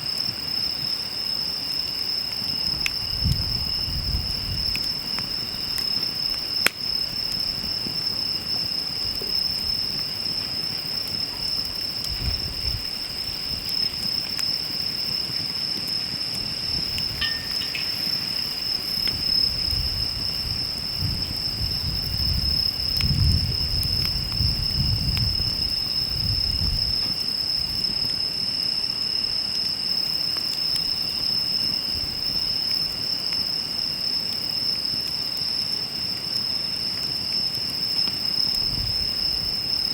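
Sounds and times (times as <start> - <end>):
campfire crackles: 0.0 - 39.9
insects singing: 0.4 - 27.8.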